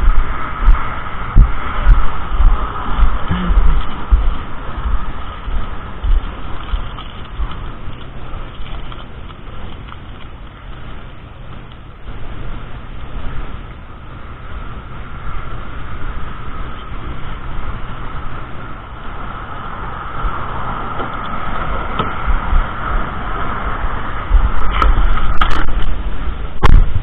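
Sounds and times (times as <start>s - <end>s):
car engine and road rumble: 0.0s - 27.0s
tyre noise: 0.0s - 27.0s.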